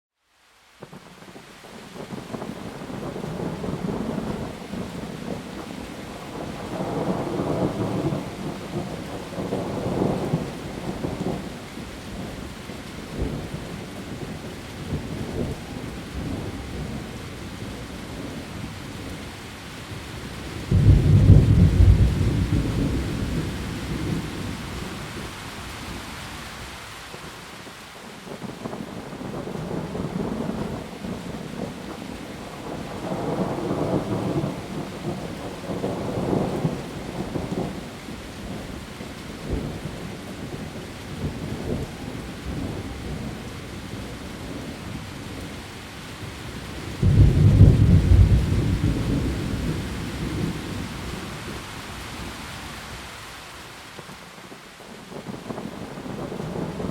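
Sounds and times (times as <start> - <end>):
heavy rain on leaves: 0.1 - 56.9
thunder rumbling: 2.1 - 19.2, 20.2 - 26.1, 46.2 - 52.5, 55.1 - 56.9.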